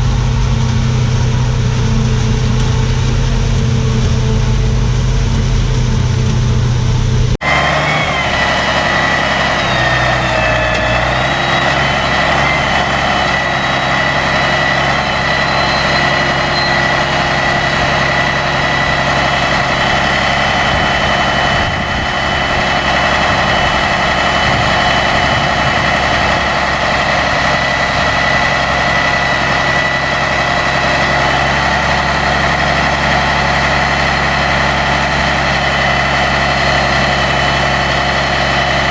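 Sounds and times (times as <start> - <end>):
high even whine: 0.0 - 36.3
machinery engine running: 0.0 - 38.9.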